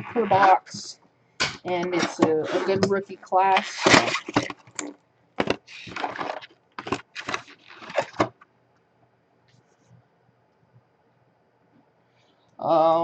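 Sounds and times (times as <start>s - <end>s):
cardboard packaging ripping: 3.5s - 8.3s.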